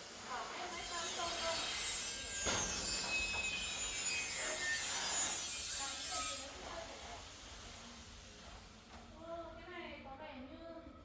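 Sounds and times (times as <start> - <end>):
harsh scraping with squeals: 2.7 - 6.5.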